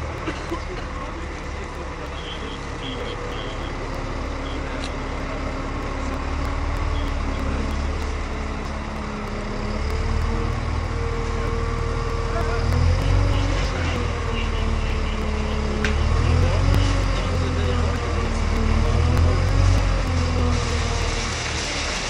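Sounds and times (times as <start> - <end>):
large vehicle engine running: 0.0 - 22.0.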